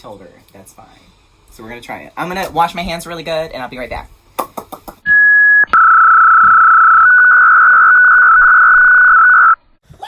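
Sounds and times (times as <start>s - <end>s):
electronic beep: 5.0s - 9.6s.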